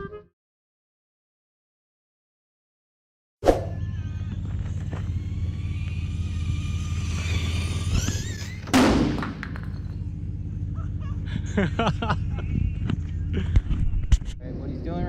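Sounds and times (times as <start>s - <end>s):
electric motor whining: 3.7s - 14.2s
steady low hum: 3.7s - 15.0s
loud impact thump: 8.6s - 9.8s.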